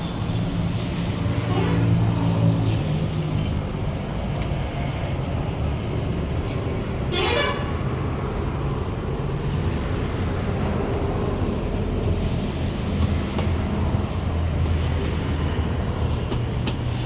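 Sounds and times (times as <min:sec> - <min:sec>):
road traffic rumble: 0:00.0 - 0:17.0
vehicle horn honk: 0:01.4 - 0:02.2, 0:07.1 - 0:07.9.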